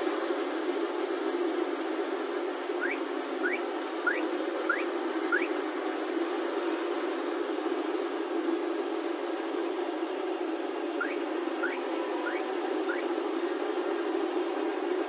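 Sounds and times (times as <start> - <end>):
combine harvester humming: 0.0 - 15.0
short rising chirps: 2.8 - 5.5, 11.0 - 13.1.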